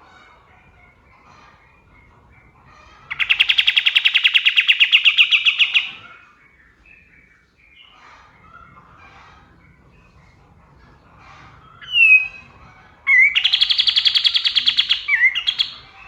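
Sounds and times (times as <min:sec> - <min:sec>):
songbird fast trill: 0:11.8 - 0:12.5, 0:13.1 - 0:15.8
soft bird chirps: 0:11.8 - 0:16.0.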